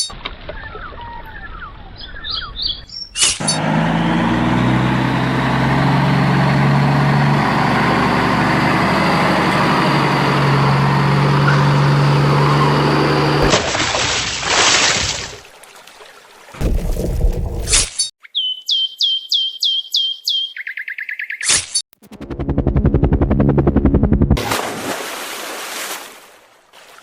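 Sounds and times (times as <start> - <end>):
heavy vehicle engine humming: 3.4 - 13.6.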